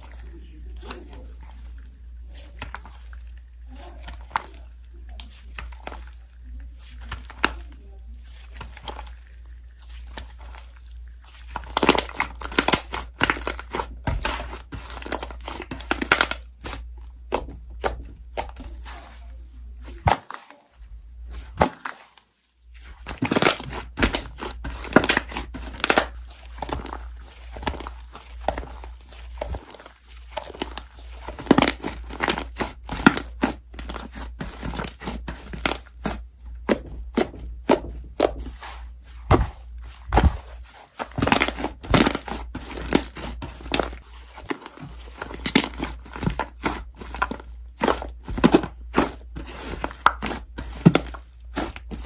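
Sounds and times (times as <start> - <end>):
slime crackling and popping: 8.4 - 19.0, 21.4 - 38.4, 41.0 - 52.0.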